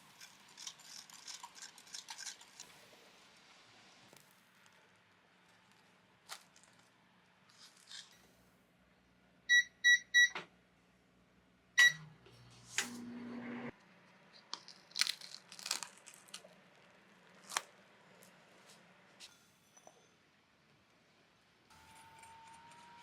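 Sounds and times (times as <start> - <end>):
microwave hum: 9.1 - 19.3, 21.7 - 23.0
microwave oven beeping: 9.5 - 10.5, 11.8 - 13.7.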